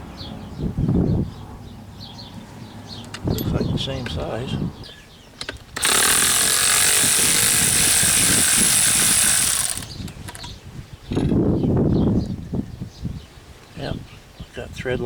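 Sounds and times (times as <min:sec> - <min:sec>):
power ratchet running: 0:05.8 - 0:10.4.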